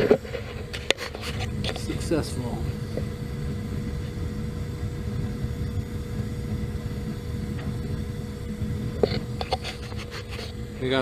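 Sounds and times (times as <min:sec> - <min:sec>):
faint even hum: 0:00.0 - 0:11.0
gas burner low rumble: 0:00.0 - 0:11.0.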